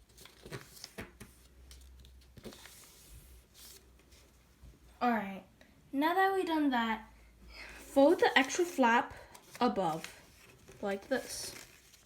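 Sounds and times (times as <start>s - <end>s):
paper rustling and crinkling: 0.0s - 4.3s, 7.8s - 12.0s.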